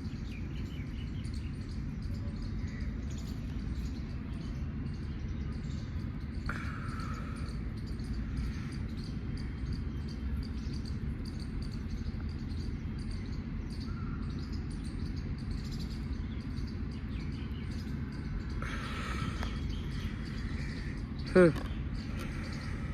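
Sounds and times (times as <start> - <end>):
steady low rumble: 0.0 - 22.9
faint insects chirping: 5.7 - 22.9
faint bird calls: 6.4 - 9.8, 17.6 - 22.9.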